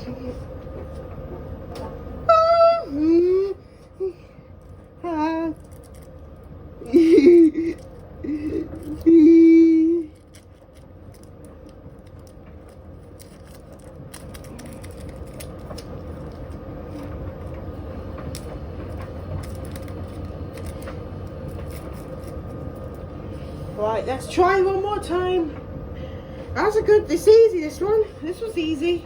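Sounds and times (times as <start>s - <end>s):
washing machine rumbling: 0.0s - 29.0s
person singing held tones: 2.3s - 4.2s.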